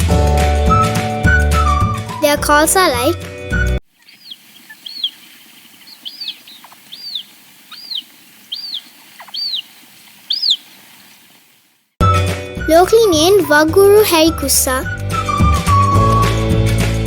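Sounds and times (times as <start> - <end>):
high thin bird calls: 3.9 - 11.5
faint background hiss: 3.9 - 12.0.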